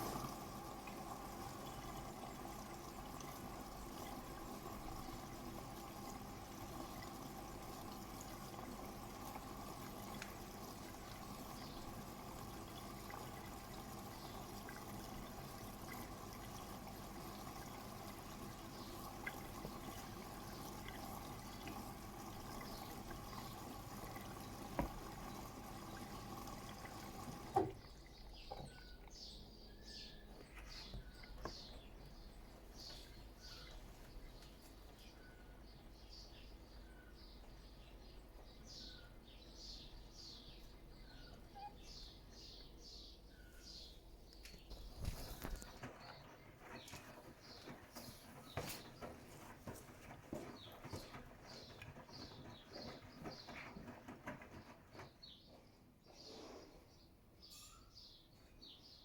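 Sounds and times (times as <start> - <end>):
water rushing into washing machine: 0.0 - 36.0, 44.7 - 55.2.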